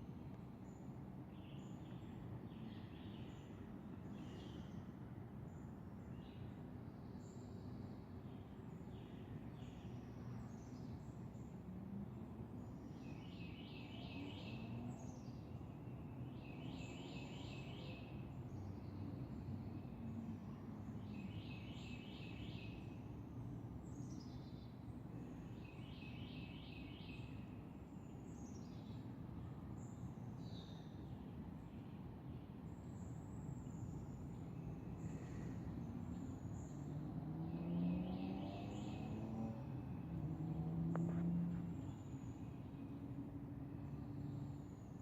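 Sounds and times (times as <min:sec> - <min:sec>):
songbirds singing: 0:00.6 - 0:45.0.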